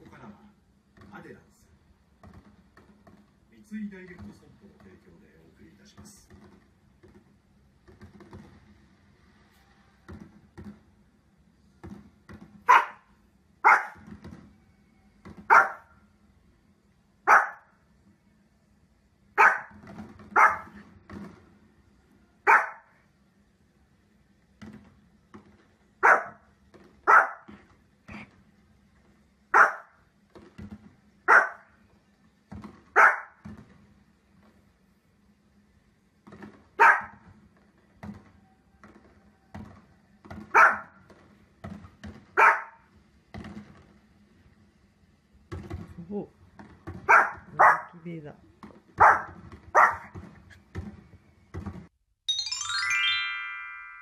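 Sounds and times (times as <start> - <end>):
small dog barking: 12.7 - 14.0, 15.5 - 15.9, 17.3 - 17.7, 19.4 - 19.8, 20.4 - 20.8, 22.5 - 22.9, 26.0 - 26.4, 27.1 - 27.5, 29.6 - 30.0, 31.3 - 31.7, 33.0 - 33.4, 36.8 - 37.2, 40.5 - 40.9, 42.4 - 42.8, 47.1 - 48.0, 49.0 - 50.1.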